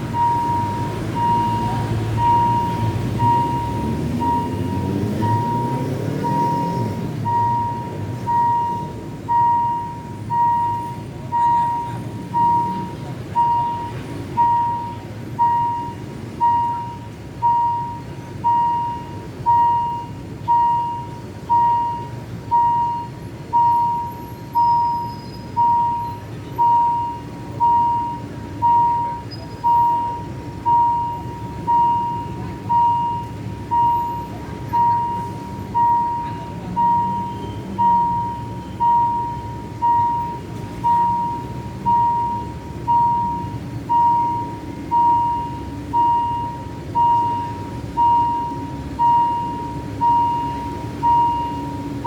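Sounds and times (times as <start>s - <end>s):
crossing warning bell: 0.0s - 52.0s
rumble of vehicles and train: 0.0s - 52.0s.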